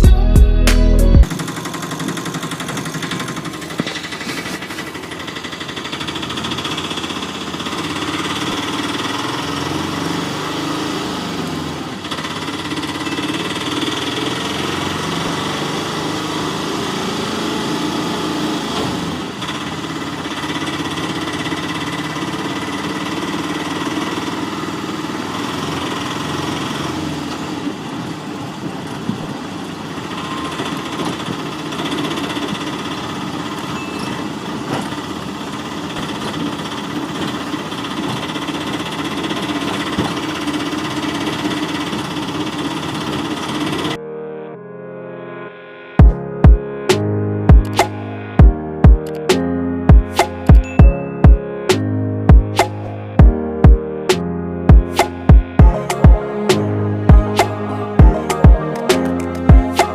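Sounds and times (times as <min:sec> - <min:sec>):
engine idling with knocking rumble: 0:01.2 - 0:10.1, 0:18.9 - 0:44.0.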